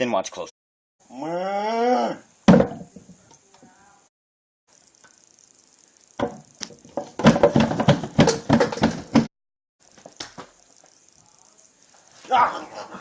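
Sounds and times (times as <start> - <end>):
rapid irregular knocking: 6.2 - 9.3.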